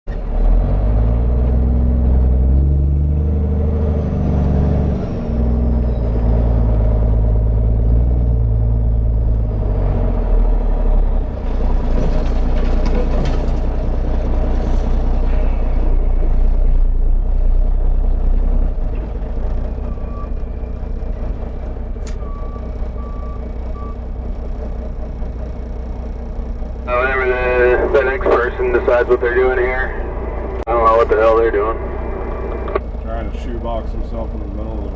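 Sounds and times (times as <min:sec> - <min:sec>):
truck engine droning: 0:00.1 - 0:34.9
reversing alarm beeps: 0:19.8 - 0:20.4, 0:22.2 - 0:24.0.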